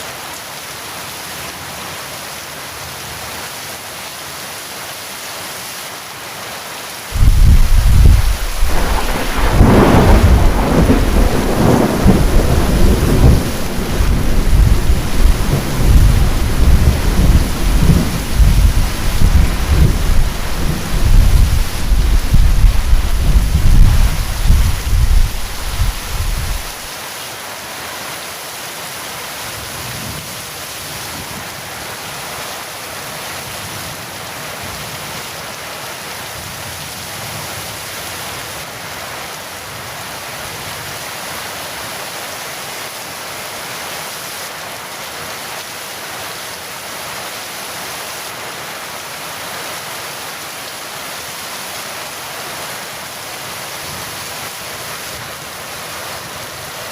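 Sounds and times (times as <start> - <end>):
heavy rain falling: 0.0 - 56.9
thunder rumbling: 7.2 - 26.9.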